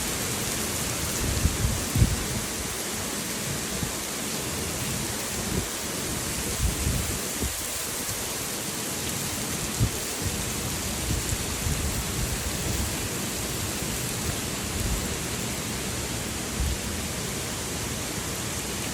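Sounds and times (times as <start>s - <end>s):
heavy rain falling: 0.0s - 18.9s
wind buffeting the microphone: 1.0s - 2.7s, 5.4s - 7.8s, 9.7s - 13.0s.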